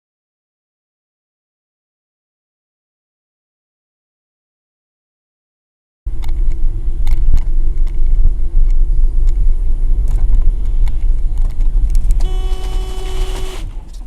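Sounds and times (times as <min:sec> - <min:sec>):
car road noise rumble: 0:06.1 - 0:14.0
car horn: 0:12.2 - 0:14.0.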